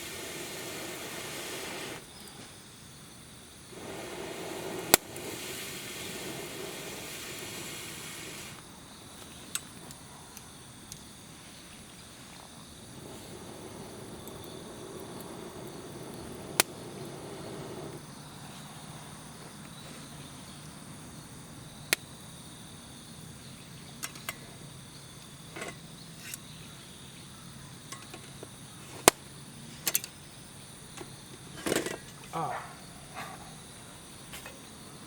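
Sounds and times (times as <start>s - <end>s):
firewood crackling: 0.0s - 2.4s, 3.7s - 8.6s, 12.3s - 18.1s
insects trilling: 0.0s - 35.0s.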